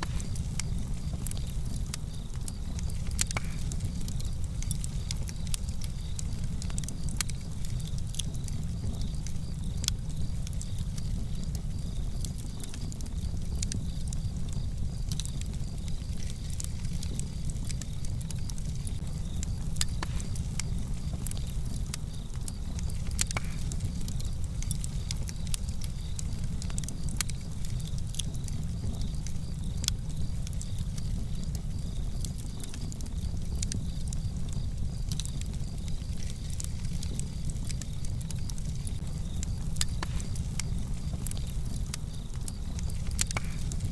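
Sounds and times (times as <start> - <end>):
fire crackling and popping: 0.0 - 43.9
low rumble of fire: 0.0 - 43.9.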